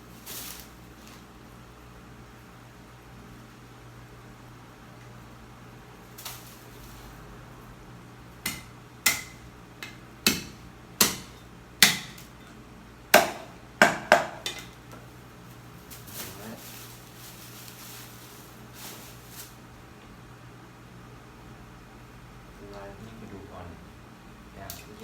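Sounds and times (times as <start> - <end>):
cleaver chopping through bones: 8.4 - 12.2, 13.2 - 14.5.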